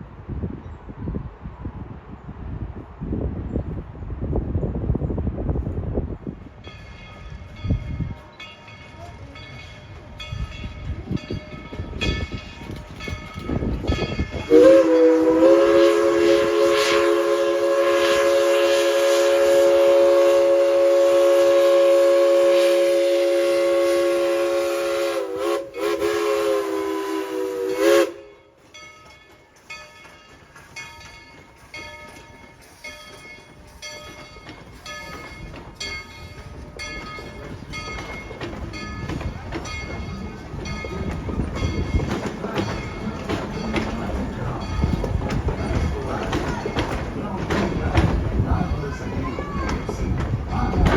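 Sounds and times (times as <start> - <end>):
train wheels clicking: 6.5 - 50.9
steam locomotive whistle: 14.4 - 28.4.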